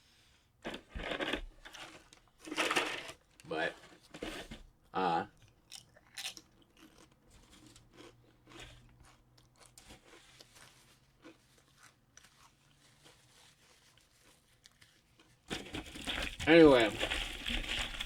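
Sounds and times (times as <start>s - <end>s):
person chewing crunchy food: 5.3s - 16.1s.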